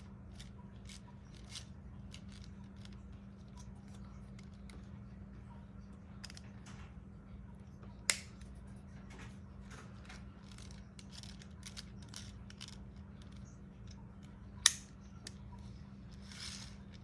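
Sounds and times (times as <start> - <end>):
sharp plastic snaps: 8.1 - 8.5, 14.6 - 15.0
small plastic clicks: 14.2 - 15.4.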